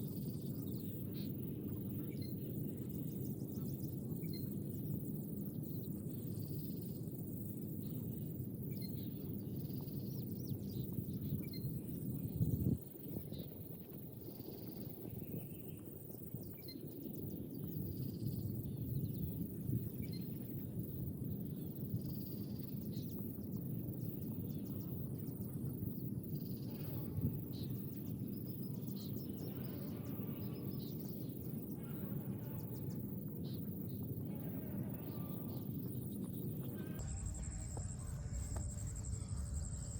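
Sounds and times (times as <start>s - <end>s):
steady low rumble: 36.8s - 39.9s.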